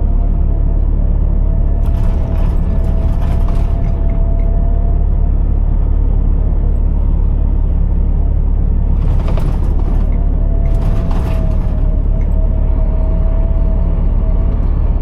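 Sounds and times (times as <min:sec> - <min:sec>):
diesel truck engine rumbling: 0:00.0 - 0:15.0
brief clatter: 0:01.7 - 0:04.6, 0:08.9 - 0:12.6.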